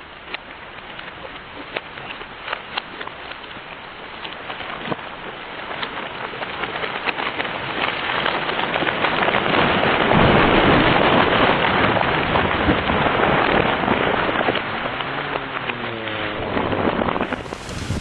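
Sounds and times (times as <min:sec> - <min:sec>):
wood cracking and snapping: 0:00.2 - 0:18.0
tree crashing down: 0:16.4 - 0:18.0.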